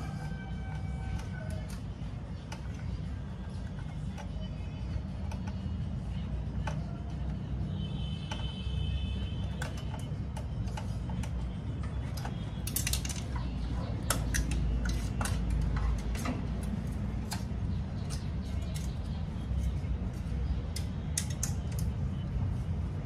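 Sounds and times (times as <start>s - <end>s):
metallic tool clicks and taps: 20.7s - 22.0s.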